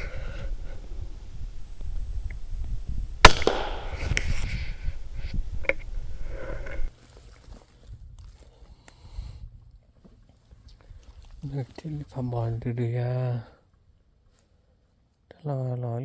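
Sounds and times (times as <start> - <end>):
rifle shot: 3.2 - 4.4.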